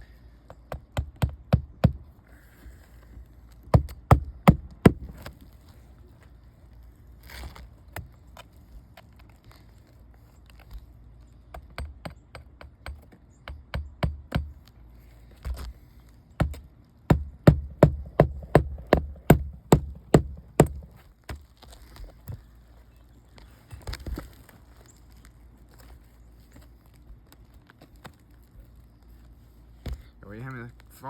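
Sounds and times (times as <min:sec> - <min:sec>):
hammer driving nails into shingles: 0:03.7 - 0:05.3, 0:11.5 - 0:14.6, 0:16.4 - 0:21.4.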